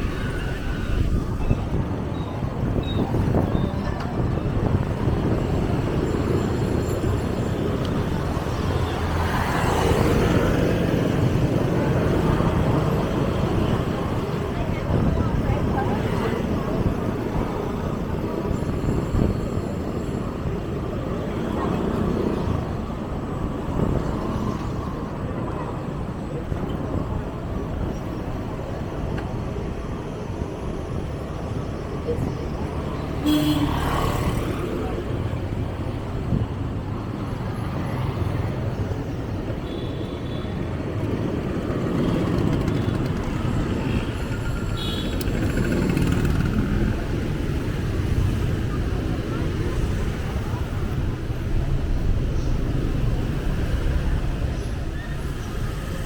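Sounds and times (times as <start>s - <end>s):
road and traffic rumble: 0.0s - 56.0s.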